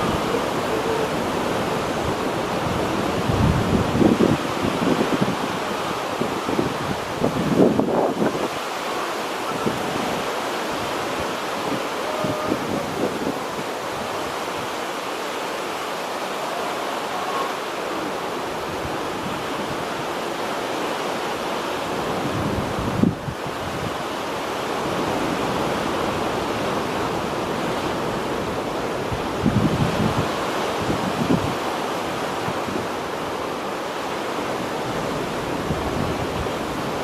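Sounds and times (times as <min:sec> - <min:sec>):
wind buffeting microphone: 0:00.0 - 0:08.7, 0:09.4 - 0:14.8, 0:21.9 - 0:24.1, 0:24.7 - 0:33.2
choppy sea waves: 0:00.0 - 0:37.0.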